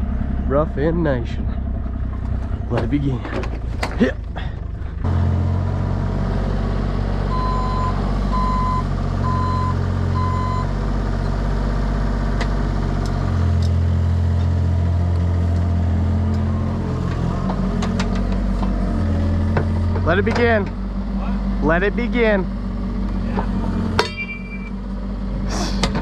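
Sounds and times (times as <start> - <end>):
engine running steadily: 0.0 - 26.0
back-up alarm beeping: 7.3 - 10.7, 24.1 - 24.8.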